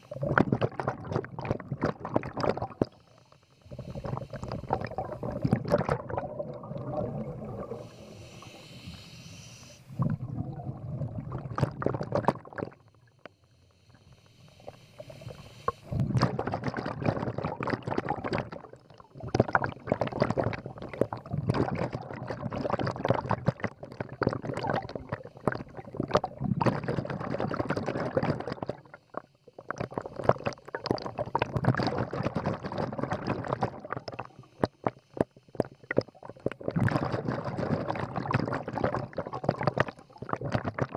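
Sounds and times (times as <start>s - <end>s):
exhaled bubbles gurgling: 0.0s - 40.9s
regulator inhalation hiss: 7.4s - 10.1s, 13.4s - 16.0s.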